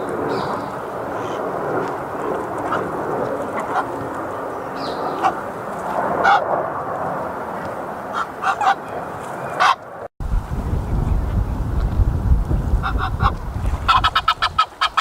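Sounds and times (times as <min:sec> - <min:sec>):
steady rushing noise: 0:00.0 - 0:15.0
geese honking: 0:02.6 - 0:04.1, 0:06.2 - 0:06.4, 0:08.1 - 0:09.9, 0:12.8 - 0:15.0.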